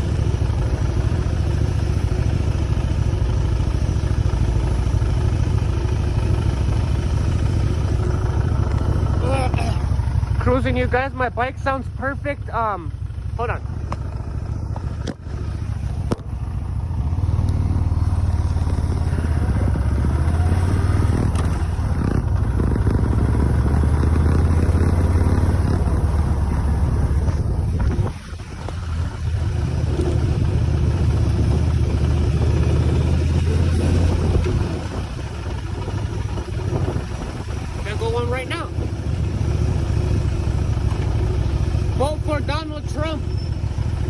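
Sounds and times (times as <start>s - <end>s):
motorcycle engine running: 0.0s - 44.0s
rider talking: 7.2s - 14.7s, 33.3s - 40.1s, 40.8s - 43.9s.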